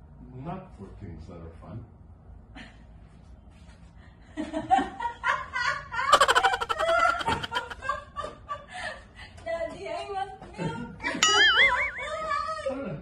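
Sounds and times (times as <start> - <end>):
woman laughing: 6.1 - 8.3.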